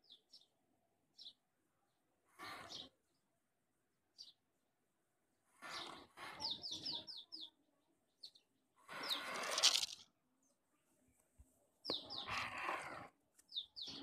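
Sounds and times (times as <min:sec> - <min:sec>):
small bird chirping: 0:00.0 - 0:03.3, 0:04.1 - 0:04.5, 0:05.5 - 0:10.1, 0:11.8 - 0:14.0
rustling noise: 0:08.9 - 0:10.1.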